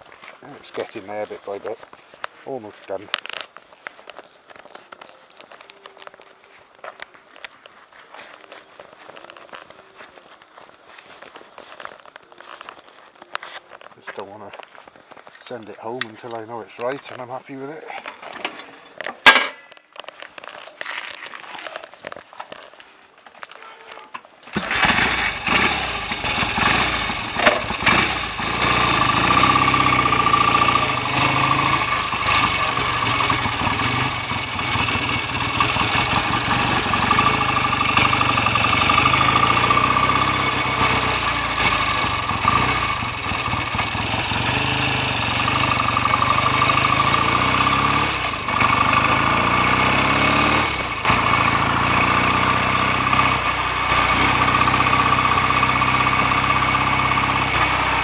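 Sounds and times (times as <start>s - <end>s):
motorcycle engine starting and idling: 0.0s - 6.2s, 15.4s - 19.8s, 23.6s - 58.0s.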